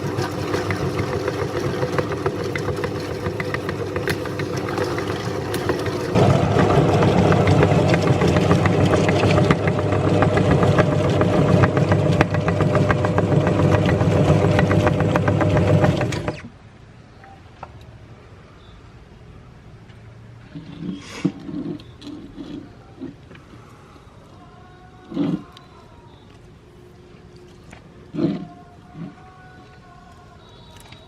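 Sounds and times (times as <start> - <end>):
meat grinder motor grinding: 0.0 - 16.4.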